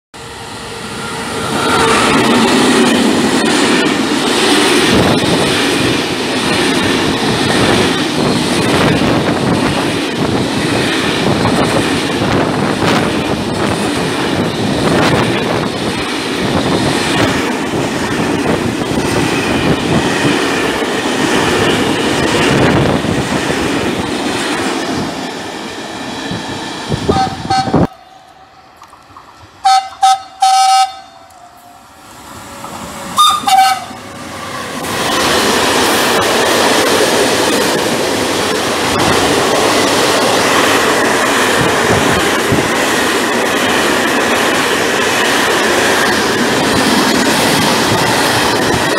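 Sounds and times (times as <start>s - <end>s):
freight train wheels rolling: 0.1s - 48.9s
locomotive horn toots: 27.1s - 28.6s, 29.6s - 31.8s, 33.2s - 34.0s.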